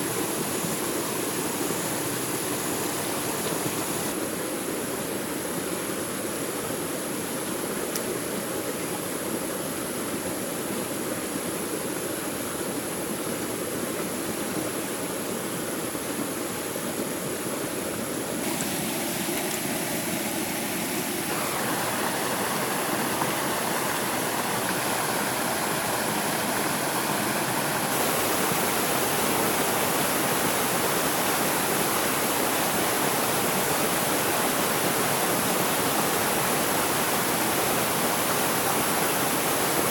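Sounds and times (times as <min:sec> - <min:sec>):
stream water rushing: 0:00.0 - 0:04.3, 0:17.0 - 0:39.9.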